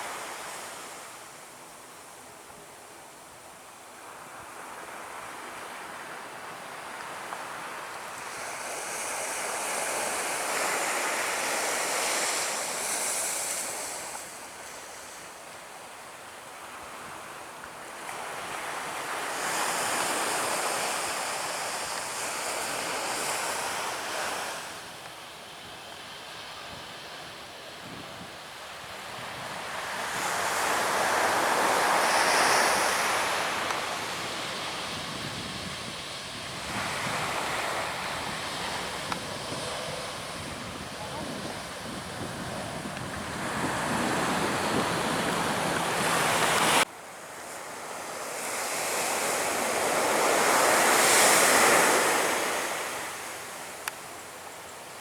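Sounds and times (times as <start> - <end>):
surf breaking on a beach: 4.1 - 55.0
wind on microphone: 27.8 - 46.8.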